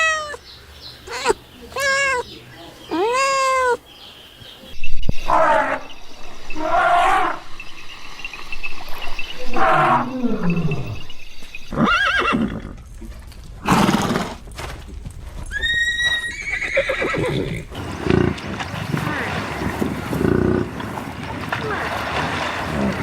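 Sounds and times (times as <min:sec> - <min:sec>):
horse neighing: 0:11.7 - 0:12.8, 0:15.5 - 0:23.0.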